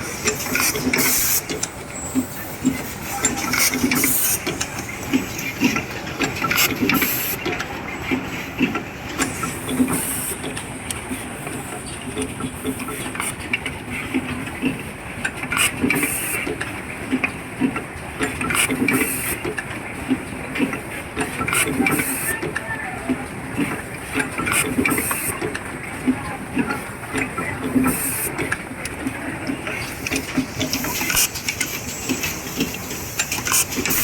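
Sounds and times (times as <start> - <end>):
machine hissing and clicking: 0.0 - 22.6, 23.2 - 34.0.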